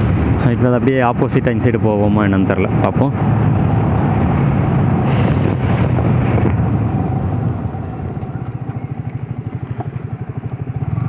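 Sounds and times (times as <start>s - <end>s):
motorcycle engine running: 3.2s - 11.0s.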